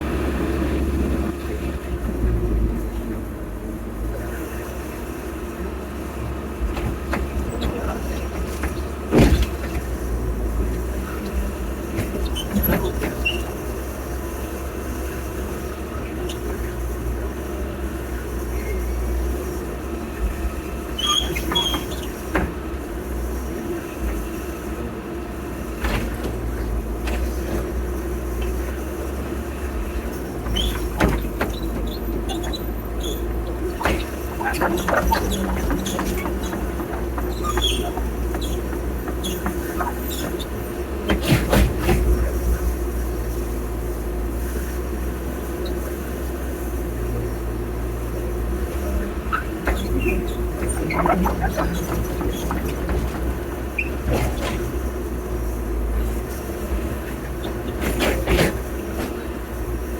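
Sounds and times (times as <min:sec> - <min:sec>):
diesel engine running: 0:00.0 - 0:59.9
high squeaks: 0:21.0 - 0:22.3, 0:30.4 - 0:41.8, 0:49.2 - 0:54.9
metal knocks and clanks: 0:30.4 - 0:42.4, 0:49.3 - 0:55.1.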